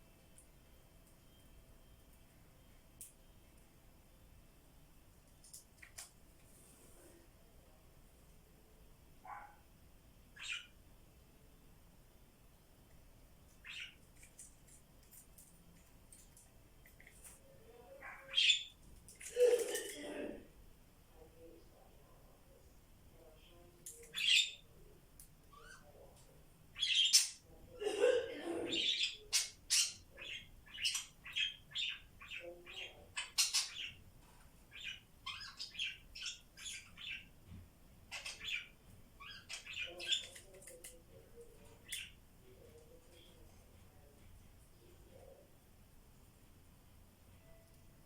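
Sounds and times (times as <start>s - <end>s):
parrots chirping and squawking: 10.4s - 10.7s, 28.7s - 34.0s, 34.7s - 37.3s, 38.1s - 40.9s.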